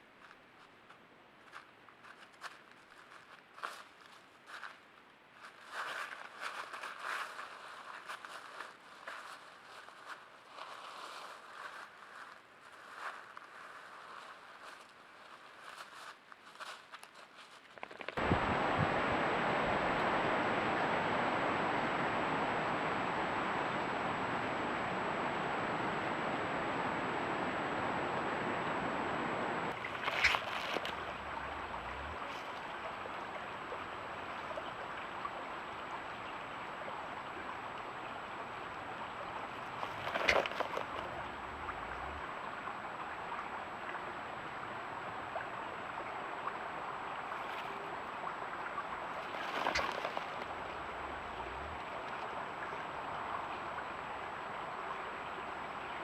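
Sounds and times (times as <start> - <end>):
running water rushing: 18.2 - 56.0.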